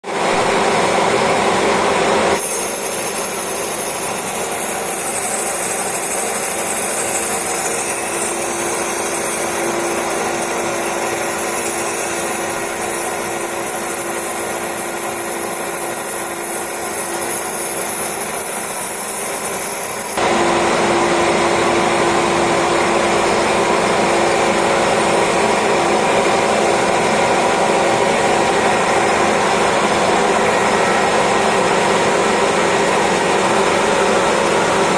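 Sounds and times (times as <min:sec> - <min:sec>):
high thin whine: 0:02.3 - 0:20.2
lathe running: 0:02.3 - 0:20.2.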